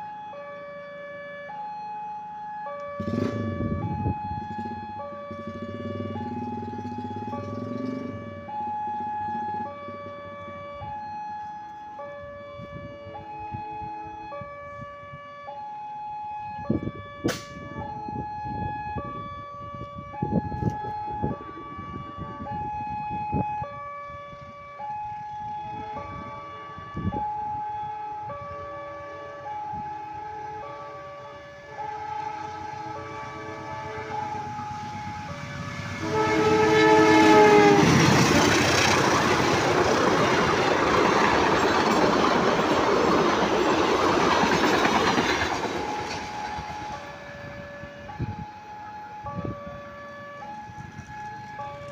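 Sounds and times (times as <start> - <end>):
level-crossing two-tone alarm: 15.4 - 51.9.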